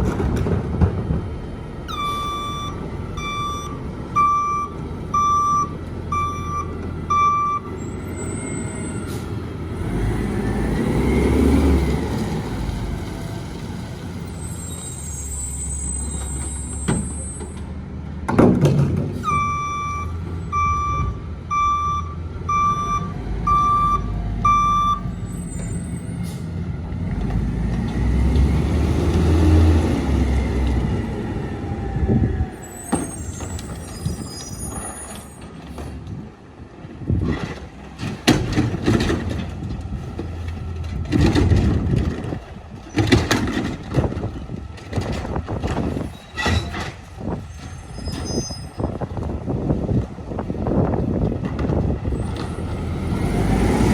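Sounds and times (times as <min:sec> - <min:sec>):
diesel engine revving: 0:00.0 - 0:18.3, 0:19.0 - 0:34.2, 0:48.8 - 0:53.9
reverse alarm beeping: 0:01.9 - 0:08.7, 0:19.3 - 0:25.1
high squeals: 0:14.4 - 0:17.6, 0:47.5 - 0:49.0
sharp knocks and clatter: 0:18.3 - 0:19.2, 0:37.3 - 0:47.1.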